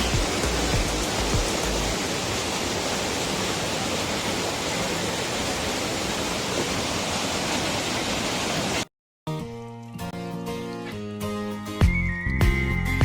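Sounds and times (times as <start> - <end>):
waterfall rushing: 0.0 - 8.9
background music: 9.3 - 13.0.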